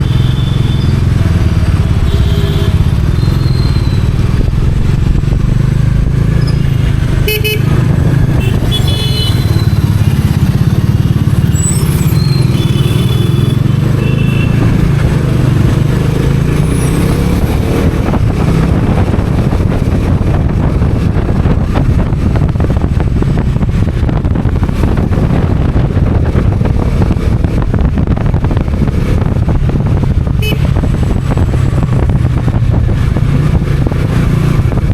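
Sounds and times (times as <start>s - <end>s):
motorcycle engine running: 0.0s - 34.9s
wind noise: 0.0s - 34.9s
horn toots: 2.0s - 4.0s, 6.5s - 7.8s, 8.4s - 9.8s, 11.6s - 14.8s, 30.4s - 30.8s.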